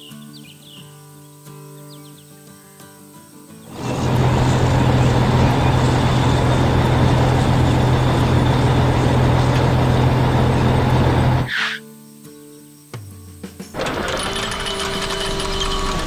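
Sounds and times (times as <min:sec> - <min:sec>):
heavy vehicle engine running: 0:03.7 - 0:11.5, 0:13.8 - 0:16.0.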